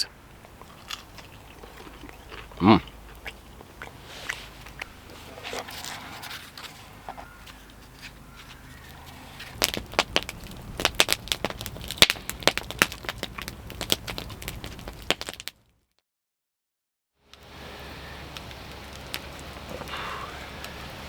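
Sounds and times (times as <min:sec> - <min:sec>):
wood fire crackling: 0:00.2 - 0:15.7, 0:17.3 - 0:21.0
sharp pops and snaps: 0:09.5 - 0:15.6, 0:18.3 - 0:20.0.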